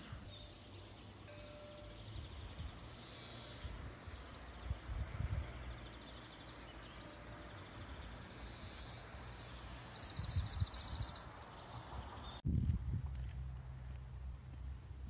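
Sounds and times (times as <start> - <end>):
outdoor background noise: 0.0 - 15.0
small bird chirping and trilling: 7.9 - 12.4.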